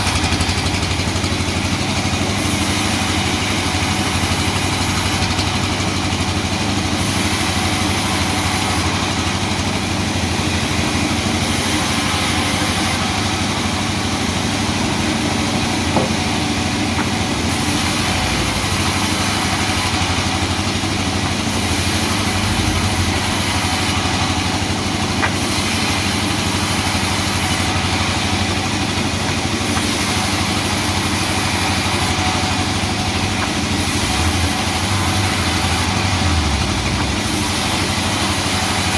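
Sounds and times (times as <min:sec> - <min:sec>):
sawmill machinery humming: 0:00.0 - 0:38.9
brief knocks: 0:15.9 - 0:16.4.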